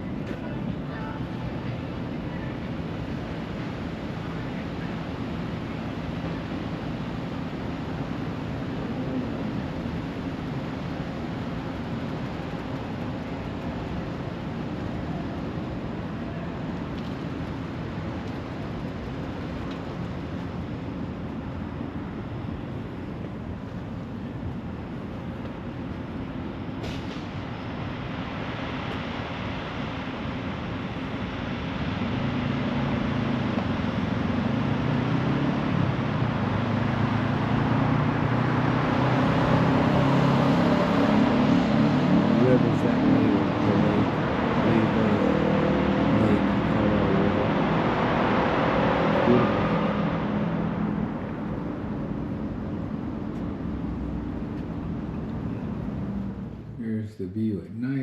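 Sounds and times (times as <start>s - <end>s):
city traffic noise: 0.0s - 58.0s
motor vehicle approaching: 31.6s - 56.8s.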